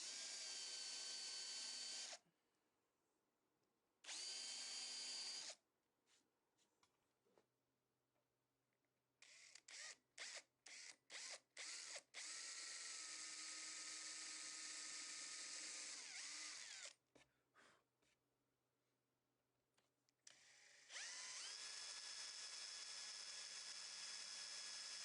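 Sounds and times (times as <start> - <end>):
electric drill running: 0.0 - 2.2, 4.1 - 5.6, 9.2 - 17.0, 20.3 - 25.0.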